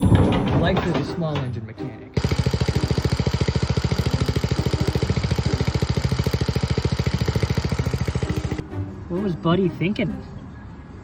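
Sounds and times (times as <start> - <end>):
small engine running: 2.2 - 8.7.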